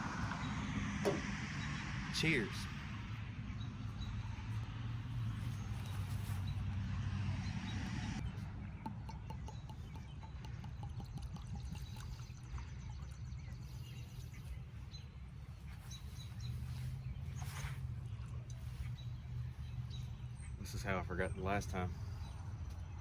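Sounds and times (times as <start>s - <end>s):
birds chirping faintly: 7.4s - 23.0s.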